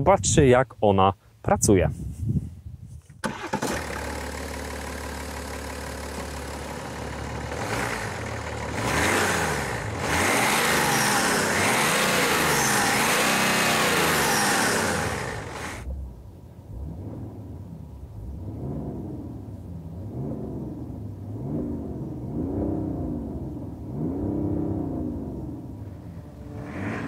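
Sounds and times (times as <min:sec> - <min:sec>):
diesel engine starting and revving: 0:03.2 - 0:27.0.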